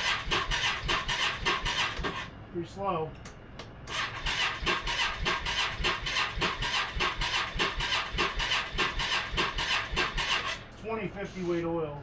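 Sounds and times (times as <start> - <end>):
motorcycle starter cranking engine: 0.0 - 2.3, 3.9 - 10.6.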